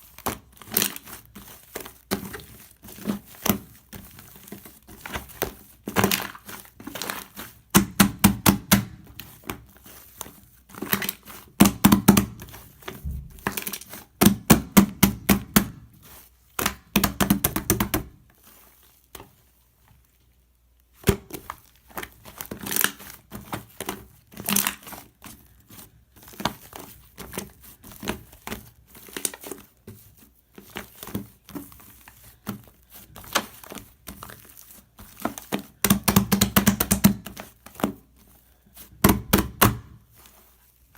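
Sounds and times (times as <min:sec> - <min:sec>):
slime crackling and popping: 0:00.1 - 0:09.7.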